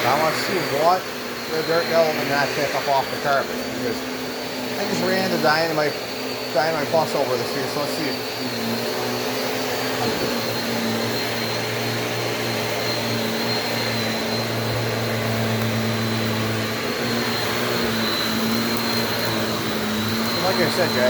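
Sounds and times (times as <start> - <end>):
vacuum cleaner running on carpet: 0.0 - 21.0.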